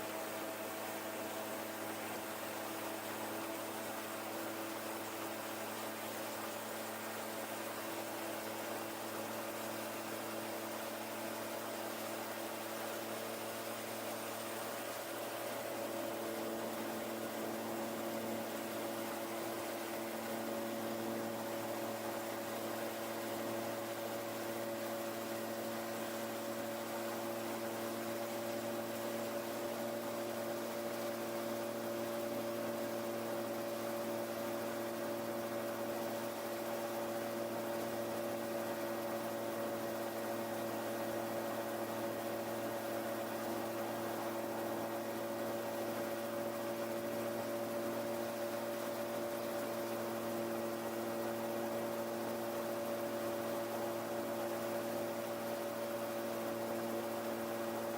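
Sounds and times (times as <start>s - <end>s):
gyroplane engine and propeller hum: 0.0s - 57.9s.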